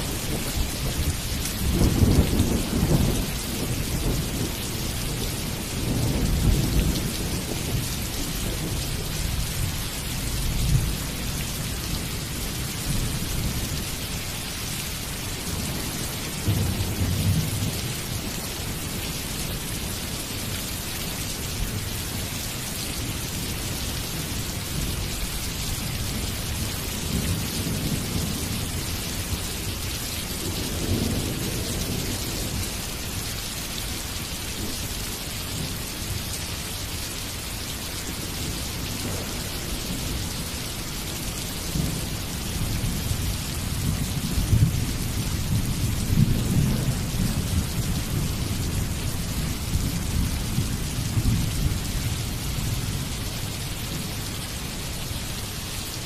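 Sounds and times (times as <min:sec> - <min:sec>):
thunder rumbling: 0:00.0 - 0:13.8
rain hissing: 0:00.0 - 0:56.0.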